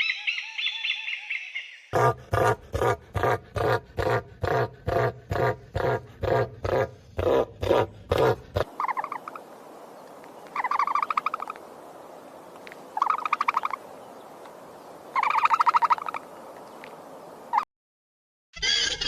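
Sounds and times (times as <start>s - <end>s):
owl trilling calls: 0.0s - 1.7s, 8.6s - 9.5s, 10.5s - 11.6s, 13.0s - 13.8s, 15.2s - 16.2s.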